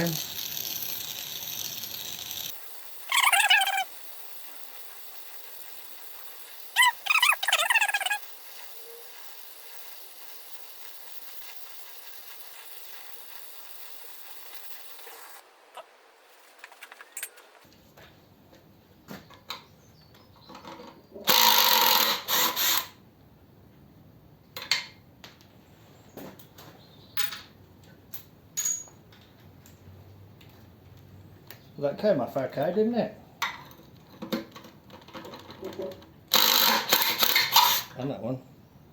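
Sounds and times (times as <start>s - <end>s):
cutting torch flame hissing: 0.0s - 15.7s
loud rasping noise: 3.1s - 4.0s, 6.7s - 13.2s
spanner clinking on metal nuts: 28.6s - 29.0s.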